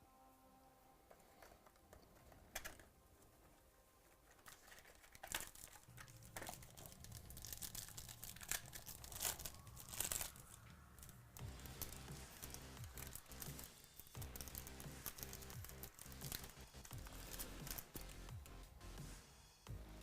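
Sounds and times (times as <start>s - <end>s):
plastic wrapping torn and crinkled: 4.1s - 18.3s.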